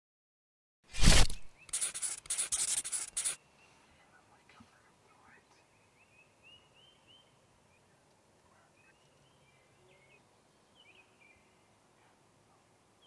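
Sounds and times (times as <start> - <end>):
quiet field ambience: 1.0 - 13.0
birdsong whistled chirps: 5.6 - 7.8, 8.8 - 11.7.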